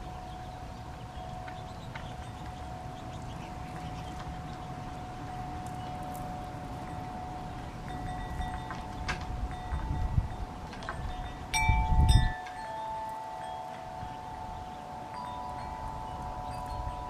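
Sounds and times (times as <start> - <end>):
wind chimes ringing: 0.0 - 17.0.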